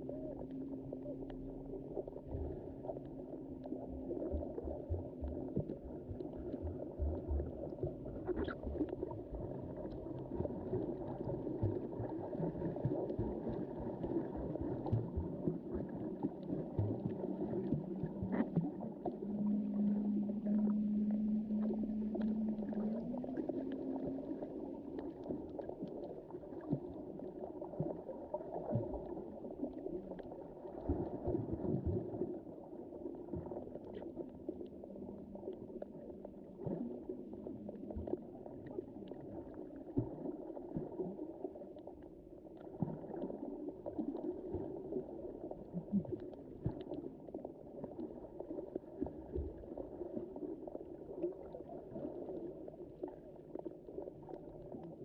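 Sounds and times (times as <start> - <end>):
underwater swirl of moving water: 0.0 - 55.0
low hum rising in pitch: 16.8 - 25.8.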